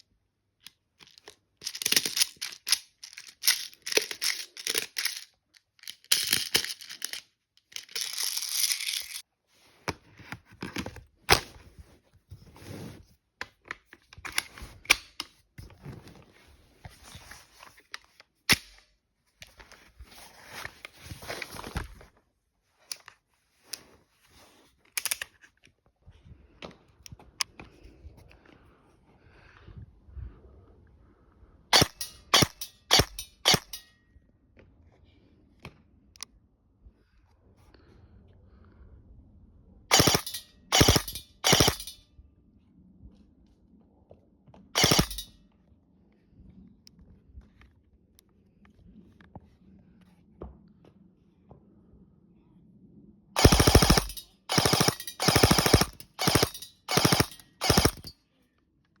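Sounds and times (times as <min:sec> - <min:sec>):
airsoft gun shots: 0:53.4 - 0:58.1.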